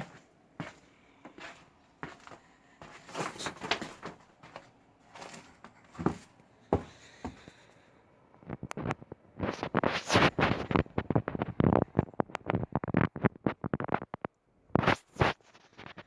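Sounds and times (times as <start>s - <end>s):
crunching scrapes: 2.9s - 6.3s, 8.8s - 14.2s.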